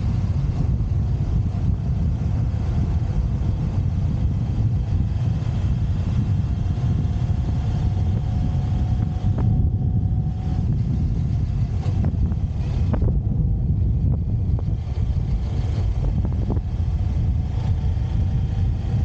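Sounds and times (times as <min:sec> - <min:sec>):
faint steady whine: 0:00.0 - 0:19.0
motorcycle engine rumble: 0:00.0 - 0:19.0
wind buffeting microphone: 0:00.0 - 0:19.0.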